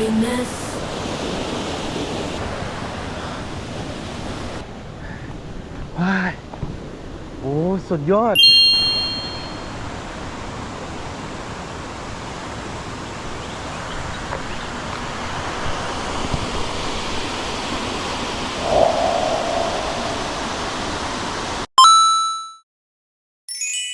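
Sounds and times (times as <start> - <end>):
short chime: 8.4 - 9.8.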